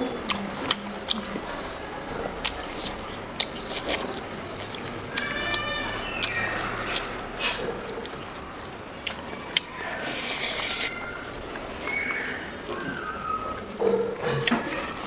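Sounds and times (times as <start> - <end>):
mouth clicks: 0.2 - 1.6
wet chewing and lip-smacking: 0.3 - 15.0.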